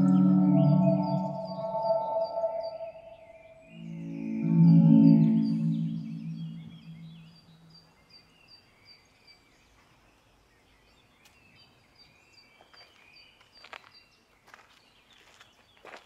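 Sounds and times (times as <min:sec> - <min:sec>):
soft bird notes: 0:00.0 - 0:08.0
bird chirping high: 0:00.0 - 0:08.7.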